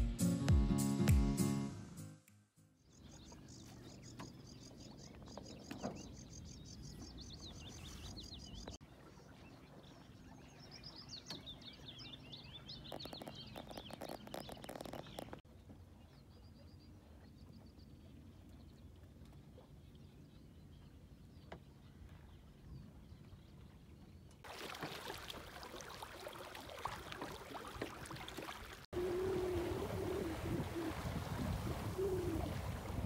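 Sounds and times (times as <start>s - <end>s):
birds singing: 2.8s - 24.4s
crackling: 12.9s - 15.4s.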